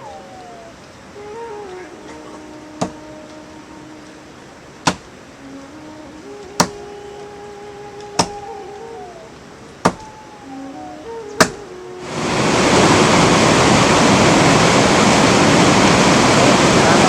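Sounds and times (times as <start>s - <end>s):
soft held tones melody: 0.0s - 13.5s
sharp knocks: 2.8s - 3.0s, 4.8s - 5.1s, 6.6s - 6.8s, 8.2s - 8.5s, 9.8s - 10.1s, 11.4s - 11.6s.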